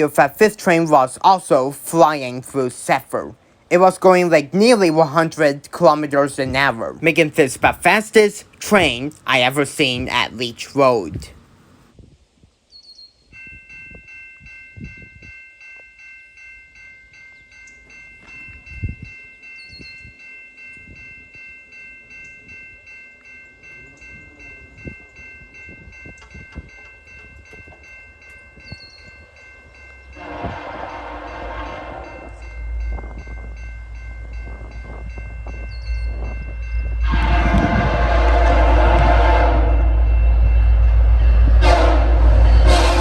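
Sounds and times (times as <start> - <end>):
level-crossing warning bell ringing: 0.0 - 11.5, 13.3 - 43.0
deep rumble of train: 17.8 - 43.0
locomotive horn: 30.2 - 32.5, 36.9 - 43.0.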